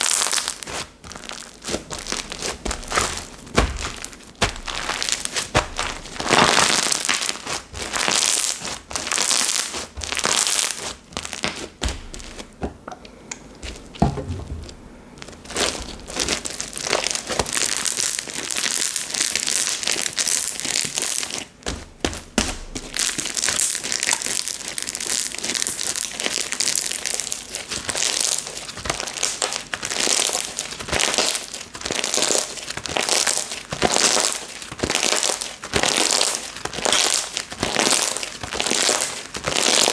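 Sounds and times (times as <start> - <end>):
slime sticky crackles and clicks: 23.1 - 39.9.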